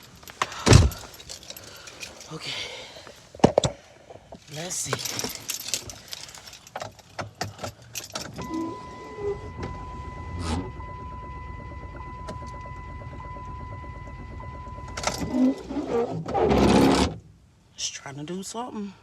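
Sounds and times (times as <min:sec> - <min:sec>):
car warning tone: 0:08.4 - 0:15.6.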